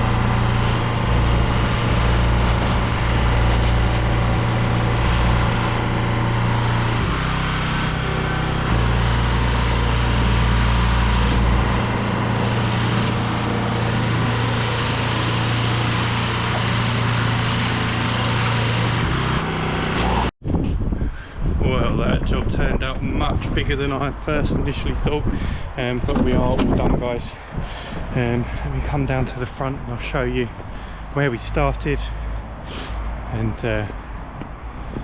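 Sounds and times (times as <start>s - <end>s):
pressure washer hiss: 0.0s - 20.3s
small petrol engine running: 0.0s - 20.3s.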